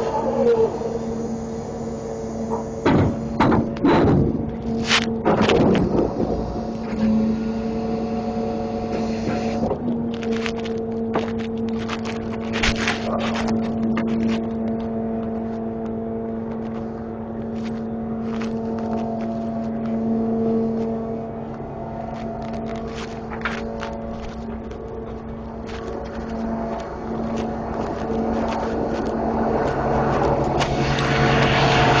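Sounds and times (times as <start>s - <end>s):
truck engine running: 0.0s - 32.0s
sharp knocks and clunks: 2.8s - 4.6s
low tone: 6.1s - 32.0s.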